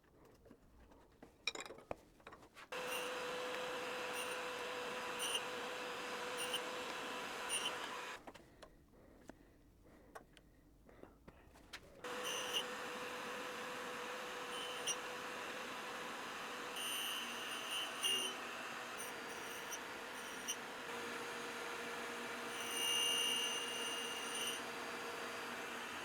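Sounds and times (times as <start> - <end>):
grinder humming and hissing: 2.8 - 8.2, 12.0 - 26.0
grinding wheel whine: 2.8 - 8.2, 12.1 - 26.0.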